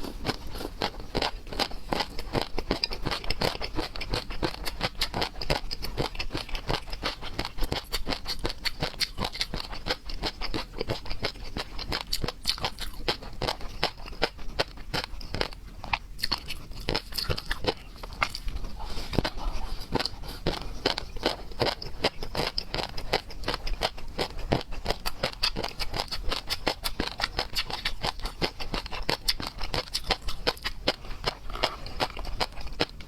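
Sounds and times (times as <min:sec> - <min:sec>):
person chewing and crunching: 0:00.0 - 0:33.0.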